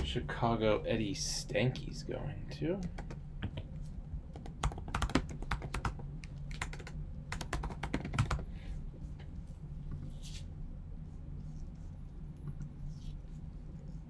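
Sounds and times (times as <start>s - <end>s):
computer keyboard typing: 2.8s - 3.2s, 4.3s - 8.4s.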